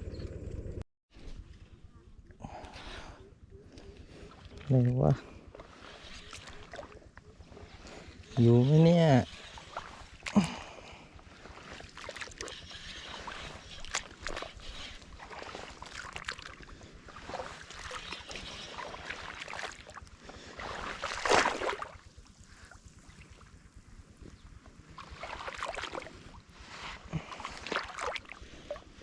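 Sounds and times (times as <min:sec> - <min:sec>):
water sloshing and splashing: 0:03.7 - 0:29.0
loud splash: 0:20.6 - 0:22.0.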